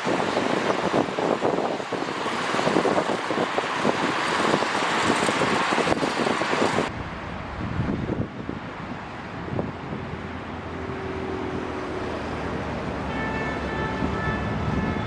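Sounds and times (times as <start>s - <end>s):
wind buffeting microphone: 0.0s - 12.7s, 13.7s - 15.0s
steady rushing noise: 0.0s - 15.0s.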